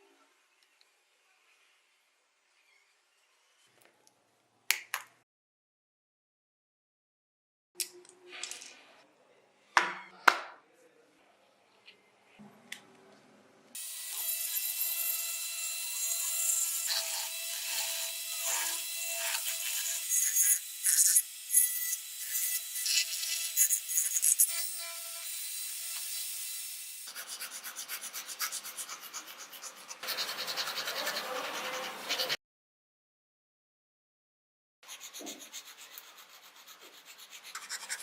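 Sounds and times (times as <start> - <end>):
rough sanding on metal: 27.1 - 32.4, 34.9 - 38.0.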